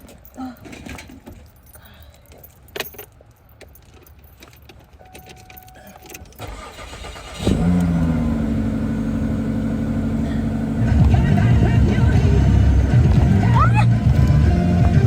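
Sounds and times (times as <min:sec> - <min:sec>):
keys rattling: 0:00.0 - 0:06.9
car engine starting and idling: 0:05.8 - 0:15.0.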